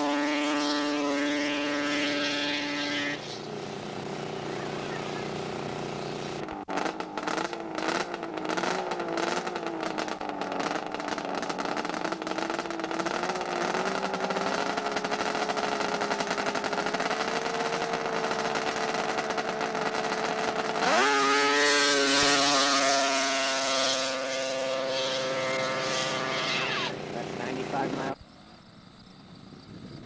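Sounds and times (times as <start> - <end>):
snowmobile engine revving: 0.0 - 28.2.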